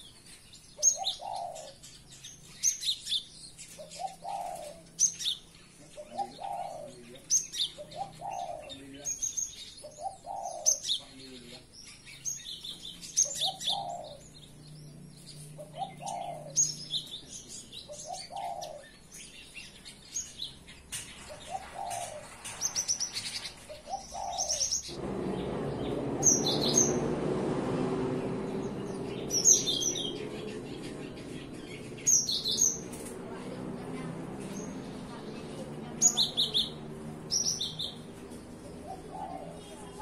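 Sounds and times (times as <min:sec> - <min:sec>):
bird chirps and trills: 0:00.0 - 0:40.0
lower rising bird call: 0:12.4 - 0:14.5, 0:23.2 - 0:40.0
steady rushing noise: 0:24.9 - 0:40.0.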